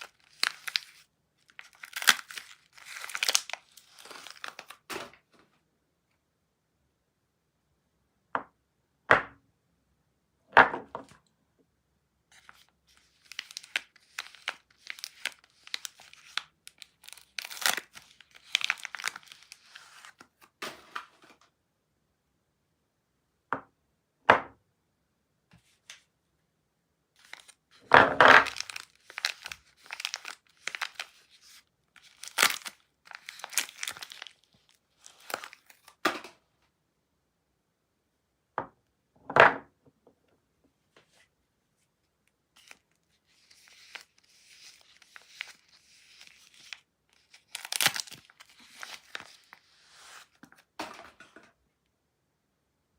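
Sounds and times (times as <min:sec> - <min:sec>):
wrapping crinkling and tearing: 0:00.0 - 0:05.2, 0:12.3 - 0:20.3, 0:27.2 - 0:27.8, 0:28.4 - 0:36.0, 0:42.6 - 0:50.7.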